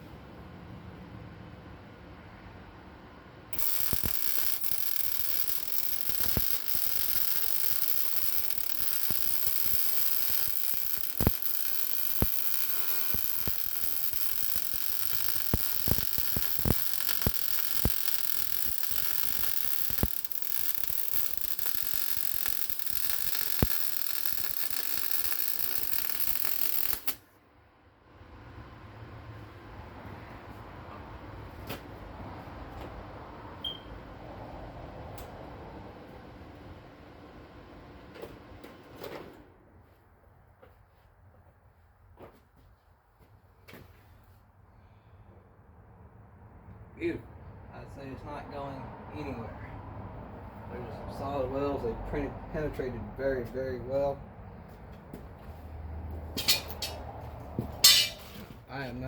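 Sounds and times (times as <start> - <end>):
welder crackling hiss: 3.6 - 27.2, 57.8 - 58.3.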